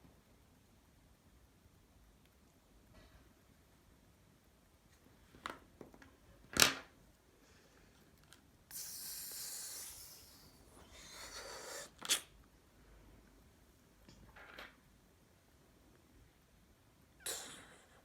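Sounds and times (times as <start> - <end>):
steady hissing noise: 7.0 - 18.0.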